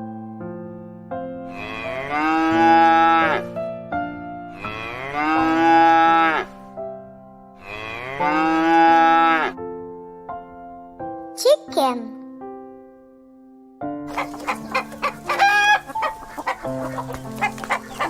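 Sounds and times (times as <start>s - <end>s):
soft background music: 0.0s - 18.0s
cow mooing: 1.5s - 3.5s, 4.5s - 6.5s, 7.6s - 9.6s.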